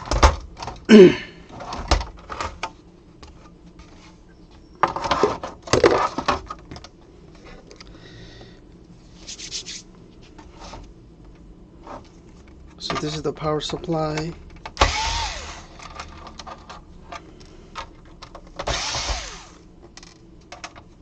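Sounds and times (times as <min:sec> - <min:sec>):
plastic parts clicking and knocking: 0:00.0 - 0:00.9, 0:12.8 - 0:15.0, 0:15.8 - 0:18.8, 0:19.8 - 0:21.0.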